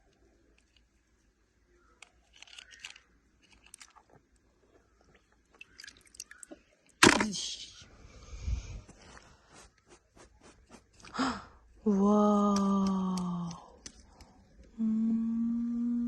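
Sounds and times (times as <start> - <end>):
handling clicks and crunching: 0.0 - 4.5.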